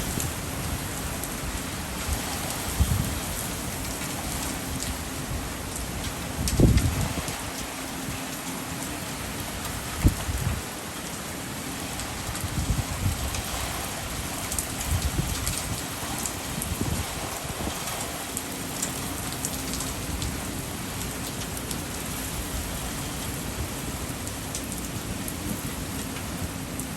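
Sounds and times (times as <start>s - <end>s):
wind gusts buffeting microphone: 0.0s - 8.2s, 9.6s - 10.8s, 12.0s - 18.4s
driving rain: 0.0s - 26.9s
strong wind rushing: 2.0s - 3.5s, 6.4s - 7.4s, 16.5s - 17.8s.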